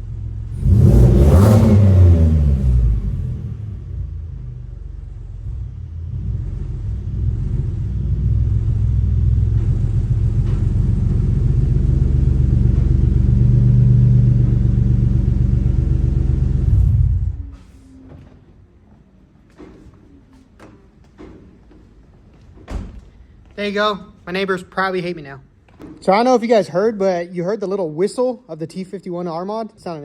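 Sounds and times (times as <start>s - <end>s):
car engine running: 0.0s - 17.5s.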